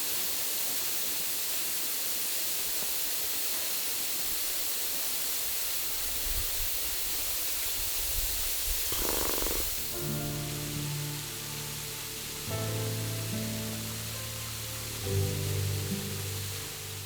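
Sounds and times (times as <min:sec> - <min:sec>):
waterfall rushing: 0:08.9 - 0:17.0.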